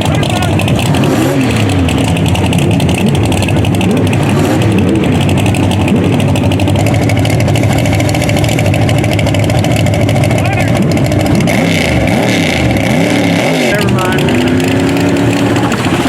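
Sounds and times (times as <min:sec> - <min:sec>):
car engines running: 0:00.0 - 0:16.0.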